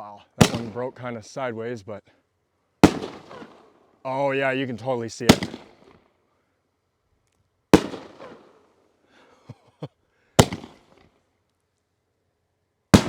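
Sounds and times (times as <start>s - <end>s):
firework bangs: 0.4s - 0.8s, 2.8s - 3.6s, 5.3s - 5.9s, 7.8s - 8.6s, 10.4s - 10.9s
faint firework pops: 2.8s - 3.6s, 5.3s - 6.0s.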